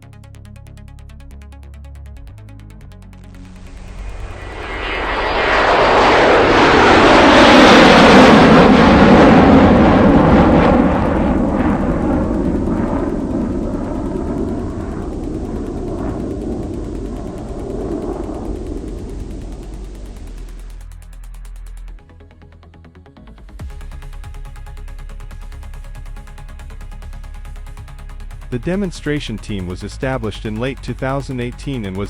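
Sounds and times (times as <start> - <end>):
fighter jet roaring past: 3.4 - 20.8.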